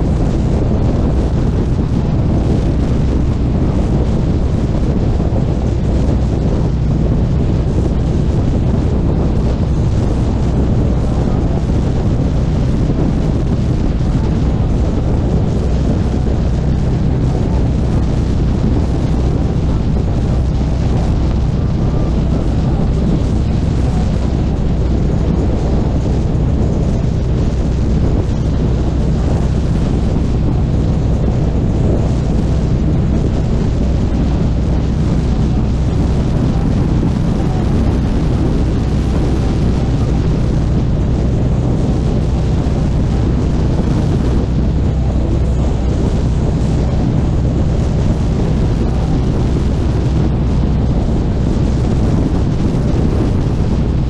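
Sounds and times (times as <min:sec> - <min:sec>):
wind buffeting microphone: 0:00.0 - 0:54.0
motorcycle engine running: 0:12.4 - 0:50.3.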